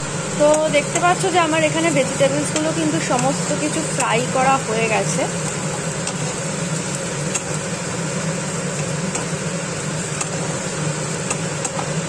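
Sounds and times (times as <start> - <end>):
vegetables sizzling in hot oil: 0.0 - 12.0
wooden spatula clicking on pan: 2.4 - 3.4.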